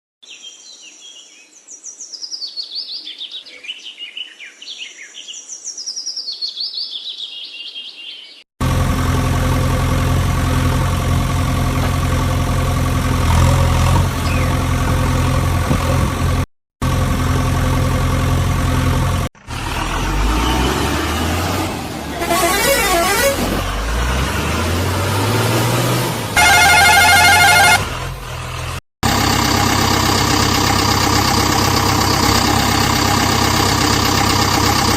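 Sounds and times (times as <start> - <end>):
tractor engine running: 8.6 - 34.9
birds chirping: 14.2 - 14.7
vehicle horn honking: 22.1 - 23.7, 26.4 - 28.1.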